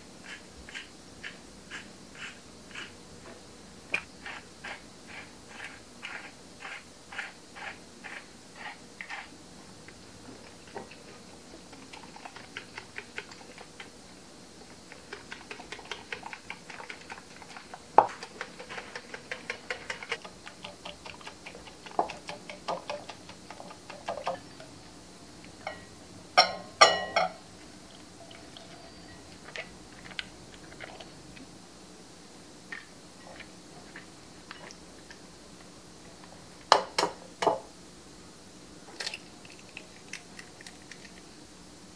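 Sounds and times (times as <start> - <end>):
whisk ticking against glass bowl: 15.0 - 24.4.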